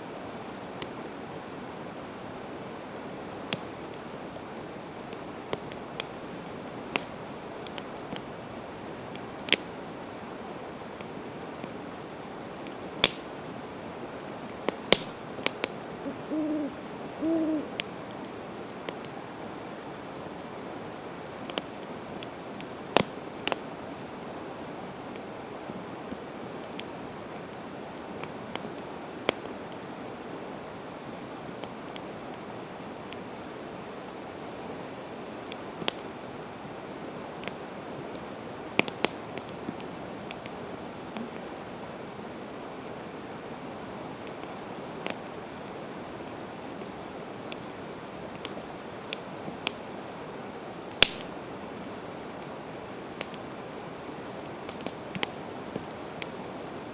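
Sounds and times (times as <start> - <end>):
steady hiss: 0.0 - 21.4
campfire crackling and popping: 2.4 - 13.4, 14.4 - 16.0, 20.2 - 20.6, 21.4 - 24.4, 26.0 - 30.0, 35.4 - 36.2, 37.3 - 41.6, 44.2 - 50.0, 50.8 - 53.5, 54.1 - 56.4
owl hooting: 3.0 - 10.4, 16.0 - 17.8.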